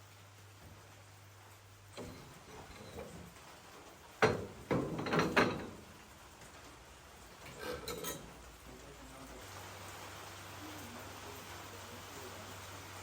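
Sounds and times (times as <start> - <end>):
hard objects knocking and clattering: 4.2 - 6.0.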